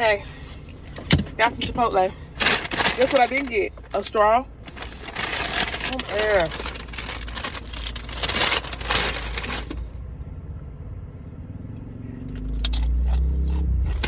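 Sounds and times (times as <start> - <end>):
scraping and rustling handling noises: 0.0 - 10.0.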